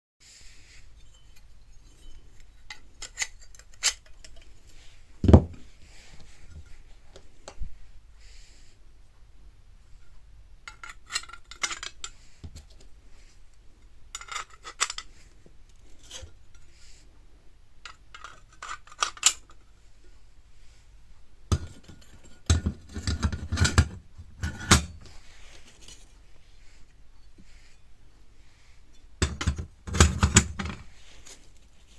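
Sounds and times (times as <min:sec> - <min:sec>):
metal parts clinking: 0:00.8 - 0:04.5, 0:14.1 - 0:15.1.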